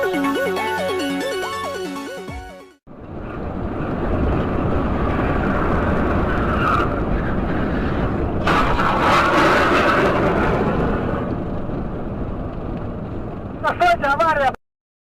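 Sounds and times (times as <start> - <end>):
car road and engine noise: 2.9 - 14.6.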